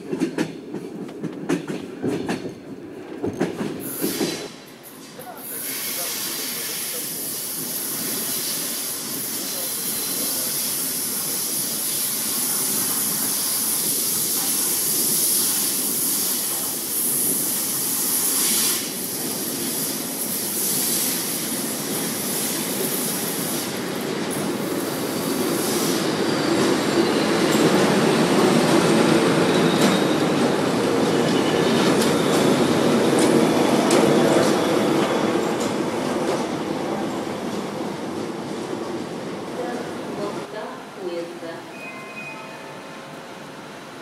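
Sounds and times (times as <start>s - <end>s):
strong high hiss: 3.9s - 26.2s.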